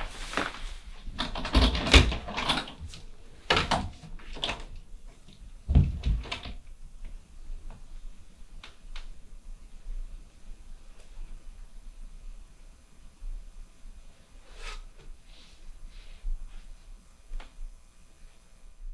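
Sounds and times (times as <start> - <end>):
knocks and thuds: 5.7 - 6.5.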